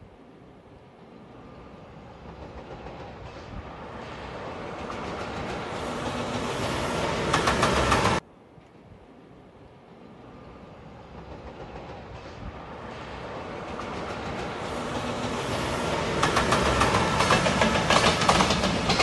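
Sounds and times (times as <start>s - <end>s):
freight train approaching: 0.0s - 8.4s, 9.2s - 19.0s
wheels clattering on rails: 11.0s - 19.0s.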